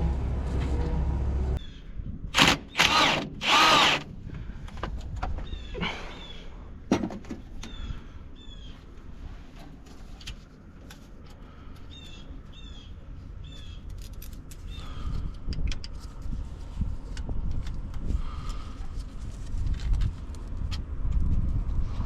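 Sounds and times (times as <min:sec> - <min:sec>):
low rumble: 0:00.0 - 0:06.9
bird calling: 0:05.4 - 0:06.6.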